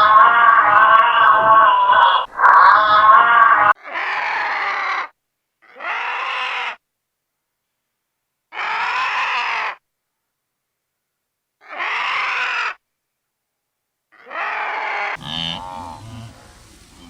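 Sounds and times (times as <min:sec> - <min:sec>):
animal call: 0:00.0 - 0:06.8, 0:14.1 - 0:17.0.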